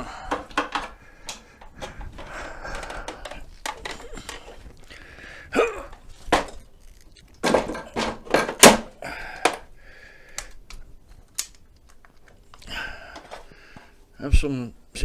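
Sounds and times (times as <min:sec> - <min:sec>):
scooter parts knocking and clunking: 0:00.0 - 0:04.8, 0:05.8 - 0:09.7.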